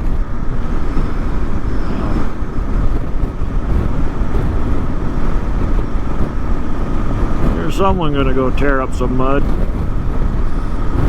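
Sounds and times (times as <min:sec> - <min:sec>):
motorcycle engine running: 0:00.0 - 0:11.0
wind rush on microphone: 0:00.0 - 0:11.0.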